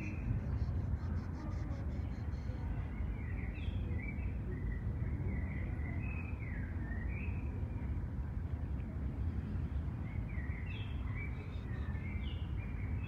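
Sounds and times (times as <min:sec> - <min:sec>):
birds chirping: 0:10.0 - 0:13.0.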